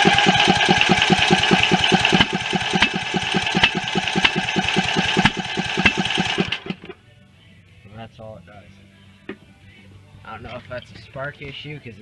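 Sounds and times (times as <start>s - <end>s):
engine cranking with starter whine: 0.0s - 7.0s.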